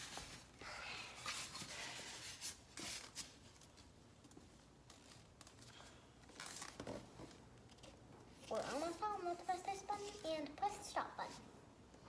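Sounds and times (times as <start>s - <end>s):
faint rustling: 4.9s - 11.5s.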